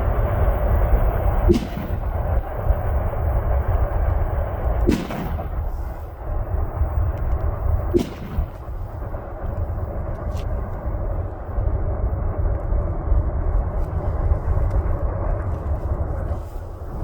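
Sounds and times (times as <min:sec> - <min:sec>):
freight train rumble: 0:00.0 - 0:17.0
faint sharp crack: 0:01.5 - 0:02.6, 0:04.8 - 0:06.1, 0:07.1 - 0:09.1
rifle shots with echo: 0:01.5 - 0:02.7, 0:04.8 - 0:06.1, 0:07.9 - 0:09.3.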